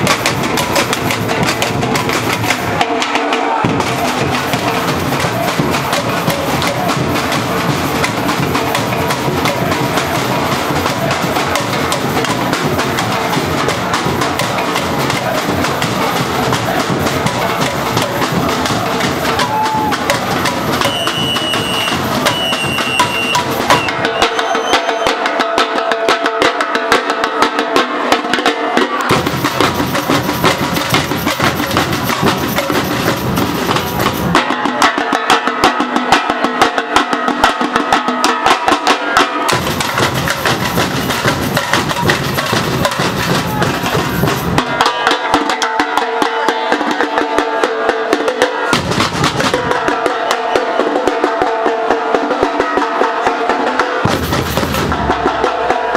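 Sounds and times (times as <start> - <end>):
bass drums: 0.0 - 2.8, 3.5 - 24.5, 29.1 - 34.4, 39.5 - 44.8, 48.8 - 49.9, 54.0 - 55.9
snare drums playing fast groove: 0.0 - 55.9.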